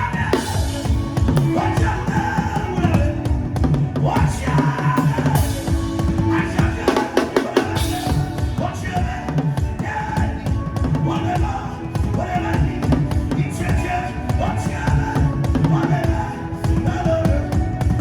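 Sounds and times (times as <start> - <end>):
fast drumming: 0.0 - 18.0.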